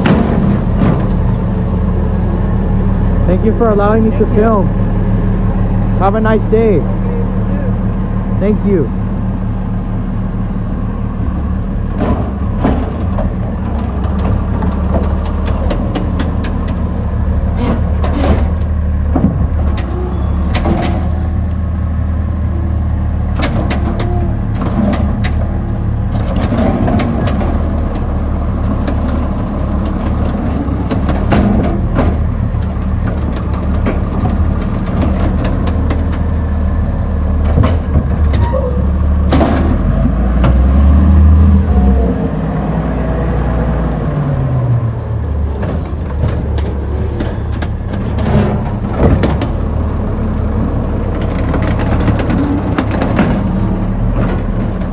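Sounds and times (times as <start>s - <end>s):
clanks and rattles: 0.0s - 4.7s, 11.1s - 21.6s, 23.2s - 40.9s, 45.0s - 54.9s
garbage truck engine running: 0.0s - 54.9s.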